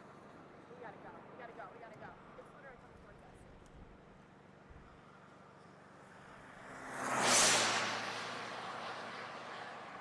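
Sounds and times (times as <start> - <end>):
vehicle passing by: 6.2 - 10.0.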